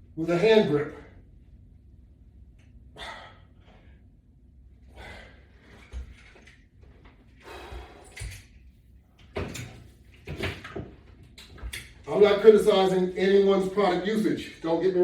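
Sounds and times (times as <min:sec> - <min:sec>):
exercise equipment rustling and clicking: 0:05.4 - 0:12.3.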